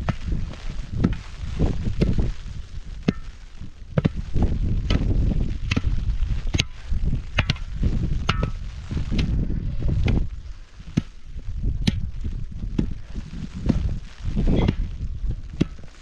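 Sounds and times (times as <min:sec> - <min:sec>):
low rumble: 0:00.0 - 0:16.0
hand tool chopping: 0:01.0 - 0:01.2, 0:04.8 - 0:05.9.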